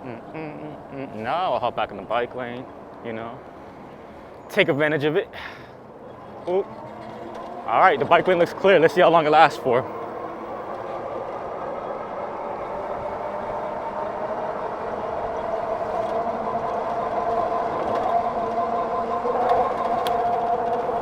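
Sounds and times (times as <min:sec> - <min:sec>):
road noise: 0:00.0 - 0:21.0
electric motor whining: 0:09.6 - 0:21.0.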